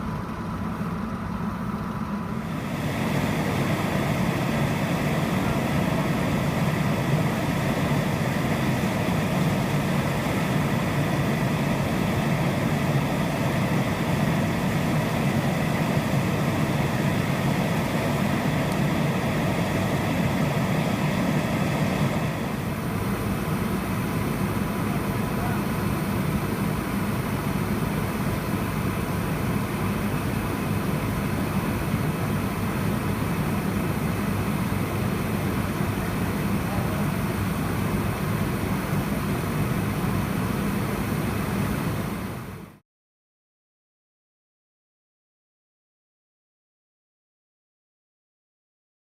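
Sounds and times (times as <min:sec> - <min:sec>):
engine running: 0:00.0 - 0:42.8.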